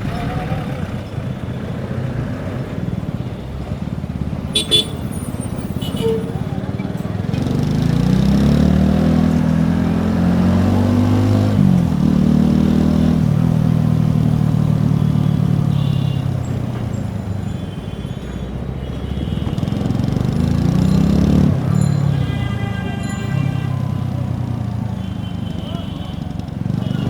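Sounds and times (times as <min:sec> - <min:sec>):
motorcycle exhaust revving: 0:19.4 - 0:22.0.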